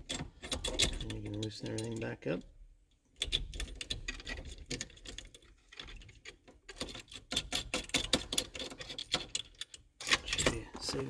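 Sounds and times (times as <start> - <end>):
rapid metallic clicking and clatter: 3.2 - 10.7.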